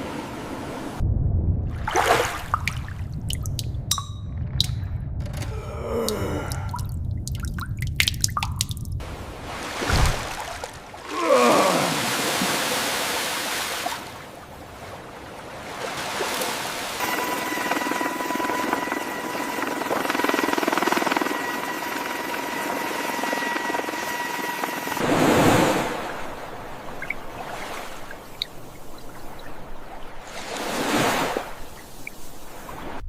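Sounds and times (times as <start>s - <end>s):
low hum: 0.8s - 9.1s
steady mechanical whine: 17.0s - 25.0s.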